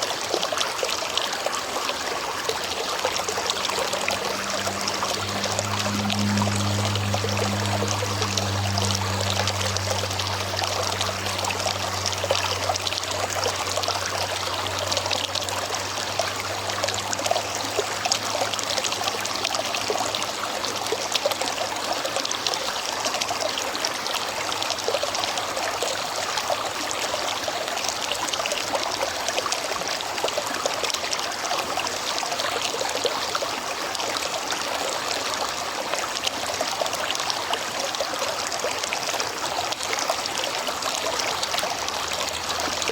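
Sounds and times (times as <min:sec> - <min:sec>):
river water flowing: 0:00.0 - 0:42.9
low hum: 0:02.0 - 0:21.2.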